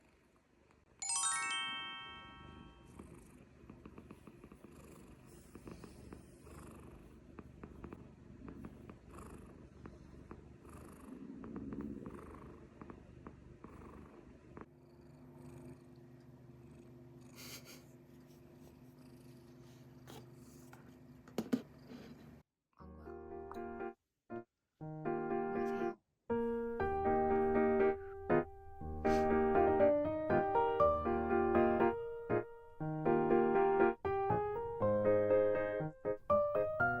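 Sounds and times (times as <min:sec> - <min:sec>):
cat purring: 0:02.8 - 0:22.4.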